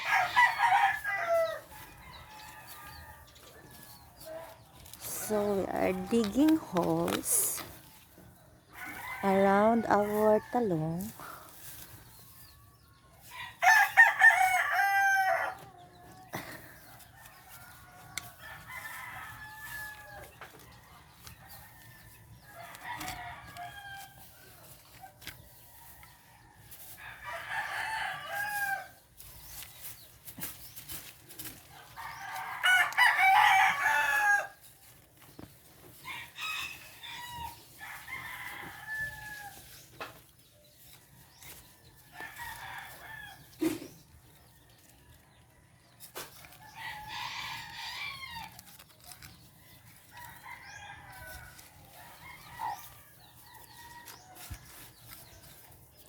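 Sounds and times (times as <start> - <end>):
roosters crowing: 0.0 - 39.9, 40.7 - 56.0.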